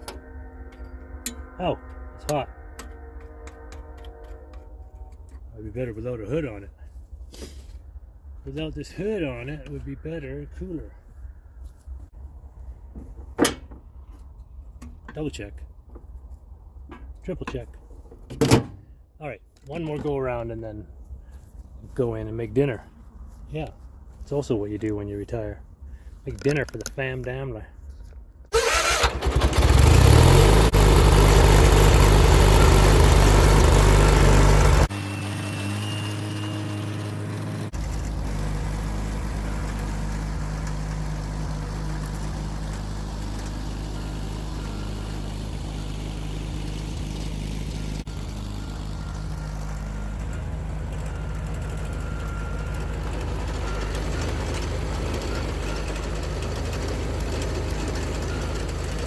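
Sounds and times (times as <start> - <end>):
garden tractor engine running: 28.5 - 59.0.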